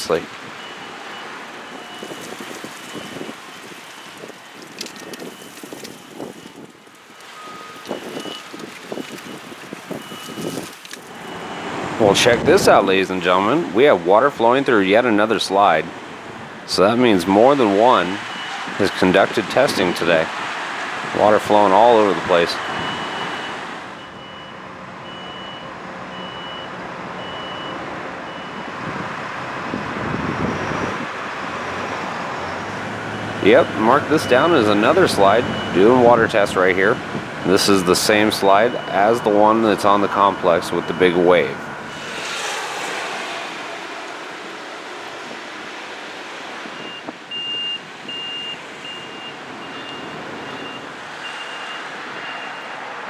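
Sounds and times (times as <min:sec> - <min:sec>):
reversing alarm beeping: 0:00.0 - 0:06.6, 0:07.4 - 0:13.6, 0:16.5 - 0:20.3, 0:21.1 - 0:28.7, 0:31.8 - 0:42.2, 0:46.8 - 0:52.7
vehicle rumble: 0:00.0 - 0:53.0.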